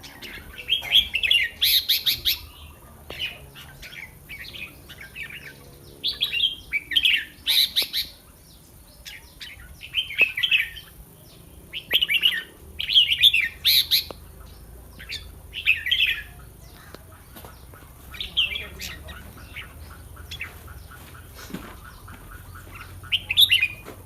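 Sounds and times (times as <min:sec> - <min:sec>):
bird singing warbled phrases: 0:00.0 - 0:24.0.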